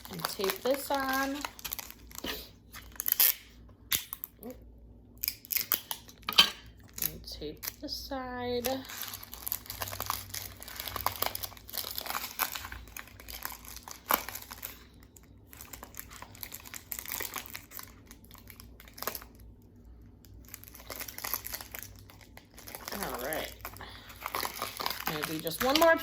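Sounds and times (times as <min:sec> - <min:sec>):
paper crinkling: 0:00.0 - 0:03.4, 0:08.8 - 0:19.4, 0:20.4 - 0:26.0
sticky tape being pulled: 0:02.8 - 0:04.3.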